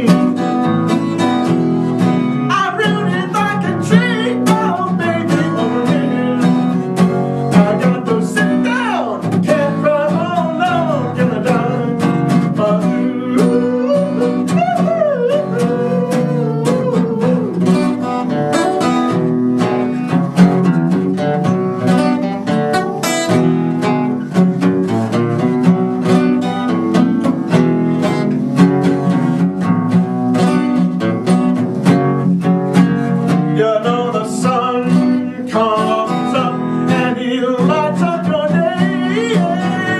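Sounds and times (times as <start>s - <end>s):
acoustic guitar strumming: 0.0s - 39.9s
person singing wavering line: 12.6s - 17.9s.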